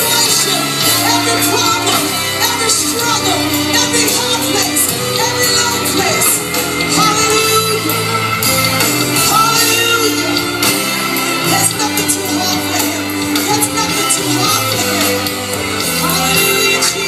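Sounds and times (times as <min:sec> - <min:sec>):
band playing worship music: 0:00.0 - 0:17.0
voices singing: 0:00.0 - 0:17.0.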